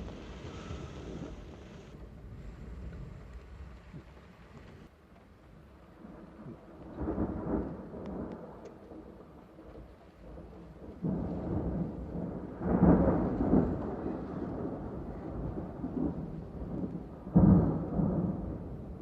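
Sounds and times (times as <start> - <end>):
thunder rumbling: 0.0 - 4.9, 5.5 - 19.0
steady rain: 0.0 - 19.0.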